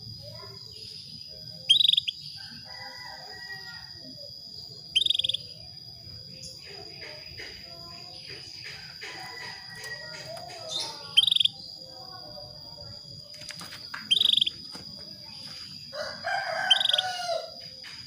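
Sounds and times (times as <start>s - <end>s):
soft twittering: 0.0s - 18.0s
canary call notes: 1.6s - 2.2s, 4.9s - 5.5s, 8.6s - 11.7s, 14.0s - 14.6s, 16.2s - 17.6s.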